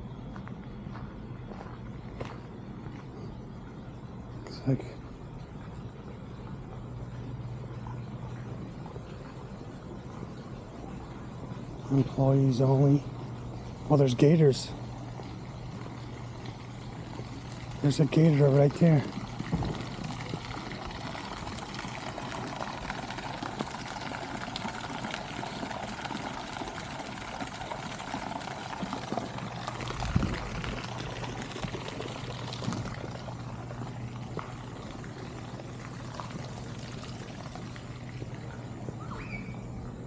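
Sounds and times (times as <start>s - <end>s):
water pouring and trickling: 5.3s - 40.0s
low thump: 19.5s - 19.8s.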